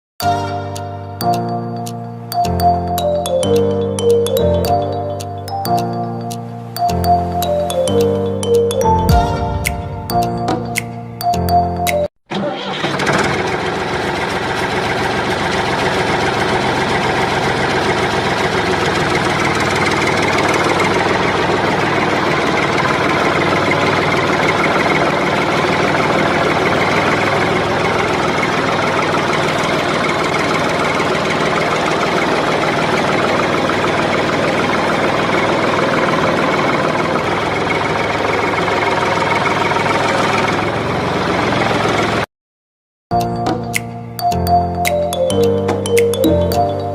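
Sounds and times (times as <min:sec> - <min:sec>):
motor running with rattling hum: 0:12.8 - 0:42.2.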